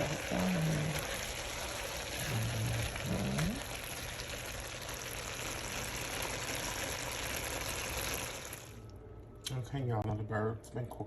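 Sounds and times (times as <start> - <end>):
food sizzling in a pan: 0.0 - 8.8.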